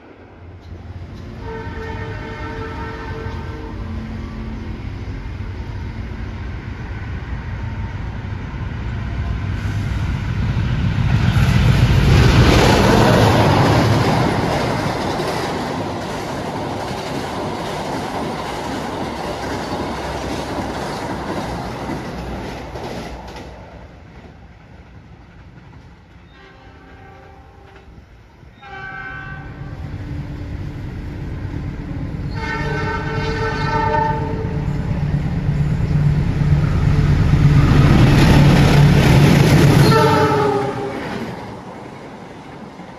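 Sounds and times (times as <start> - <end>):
train rushing past: 0.0 - 42.9
train horn blasts: 1.4 - 4.6, 26.3 - 27.9, 28.6 - 29.9, 32.3 - 34.7, 39.8 - 41.2.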